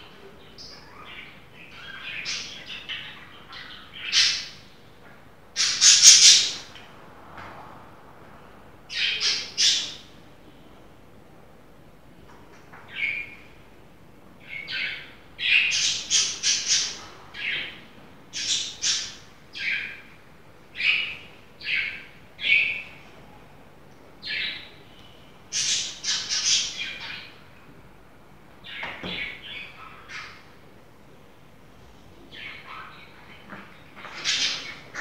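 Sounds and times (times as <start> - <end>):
bird chirping: 5.6 - 6.7, 14.4 - 20.1, 24.2 - 27.4.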